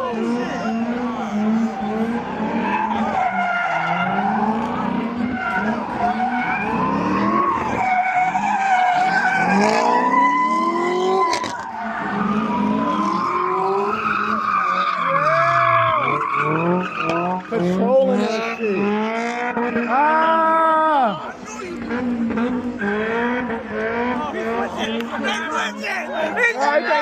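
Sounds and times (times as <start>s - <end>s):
car engine revving: 0.0s - 27.0s
tyres squealing: 0.4s - 20.6s.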